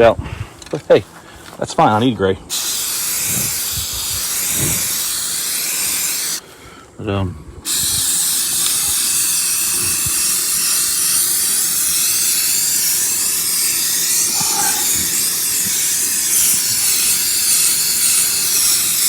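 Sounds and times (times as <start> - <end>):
aerosol spray can hissing: 2.5 - 6.4, 7.7 - 19.0.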